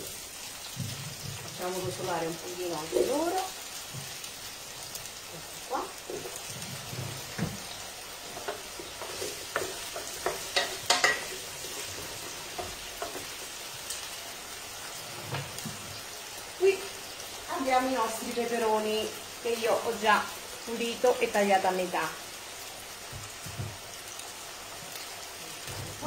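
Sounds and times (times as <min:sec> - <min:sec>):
potatoes sizzling in hot oil: 0:00.0 - 0:26.0
wooden spoon scraping a pan: 0:05.4 - 0:13.9, 0:14.8 - 0:16.0.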